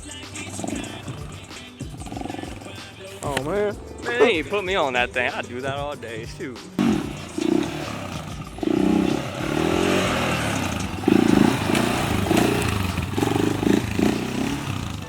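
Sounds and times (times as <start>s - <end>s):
off-road engine revving: 0.0s - 2.9s, 6.8s - 15.0s.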